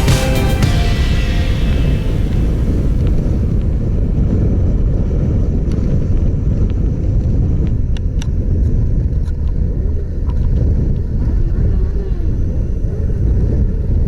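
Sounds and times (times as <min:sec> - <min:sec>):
wind noise on microphone: 0:01.7 - 0:14.0.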